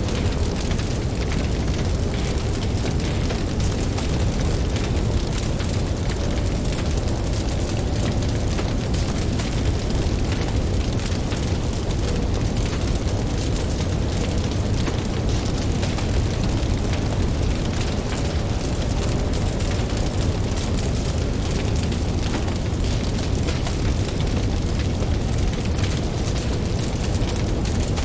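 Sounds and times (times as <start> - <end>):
campfire crackling and popping: 0.0 - 28.0.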